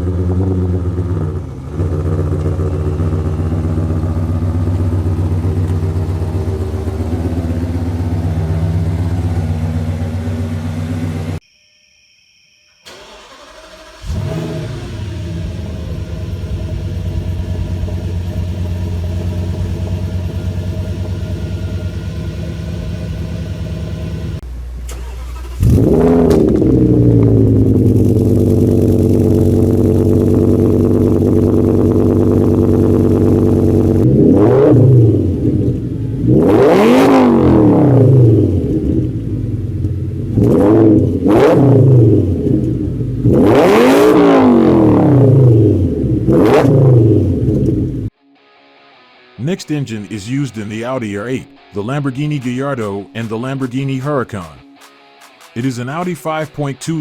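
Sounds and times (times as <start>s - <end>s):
car engine idling: 0.0s - 11.4s, 12.8s - 34.5s, 35.1s - 43.8s
engine throttle blips: 0.0s - 11.4s, 12.8s - 48.1s
engine starting: 12.8s - 16.1s, 24.8s - 26.9s.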